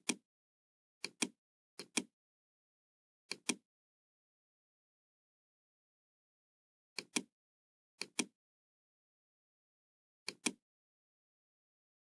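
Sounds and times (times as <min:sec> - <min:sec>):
computer mouse double-clicking: 0:00.0 - 0:00.2, 0:01.0 - 0:02.1, 0:03.3 - 0:03.6, 0:08.0 - 0:08.3, 0:10.3 - 0:10.6.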